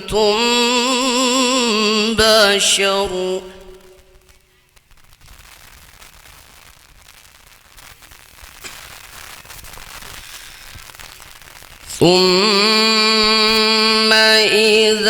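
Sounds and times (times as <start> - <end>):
recording static hiss: 0.0 - 15.0
crackles and clicks: 3.6 - 14.8.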